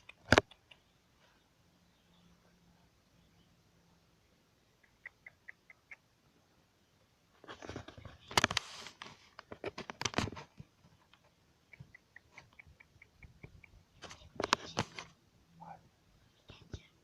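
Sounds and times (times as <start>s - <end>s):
sharp clicks: 0.0s - 0.9s, 11.0s - 15.1s
small bird chirping: 0.0s - 7.1s, 10.9s - 14.4s.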